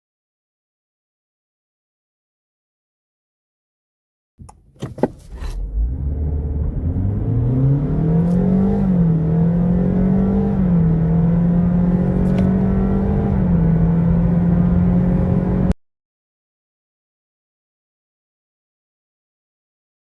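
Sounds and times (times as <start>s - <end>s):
road noise rumble: 4.4s - 15.7s
car engine accelerating: 4.4s - 15.8s.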